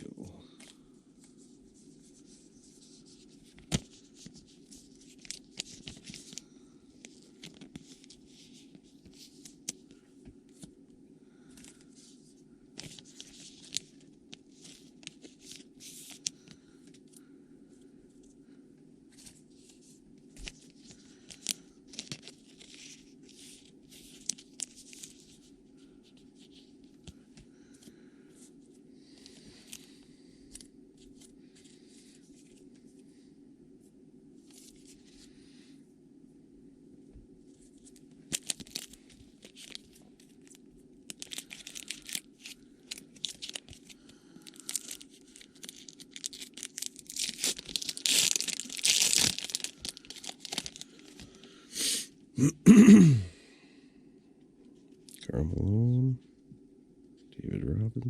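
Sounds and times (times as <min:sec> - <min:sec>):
steady low hum: 0:00.0 - 0:58.0
wrappers tearing and crinkling: 0:38.3 - 0:51.4.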